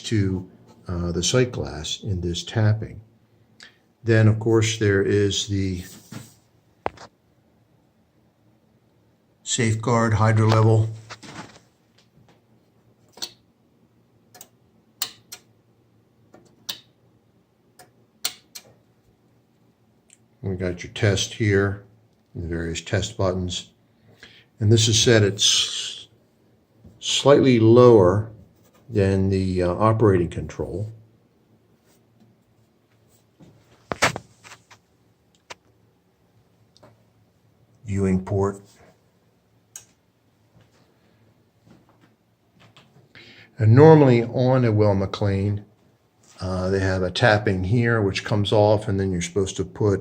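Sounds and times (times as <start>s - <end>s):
faint low hum: 0.0s - 50.0s
sharp clicks: 14.3s - 15.5s.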